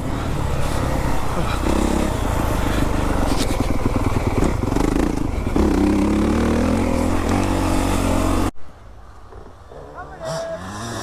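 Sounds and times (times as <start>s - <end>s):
motocross bike engine running: 0.0s - 8.5s.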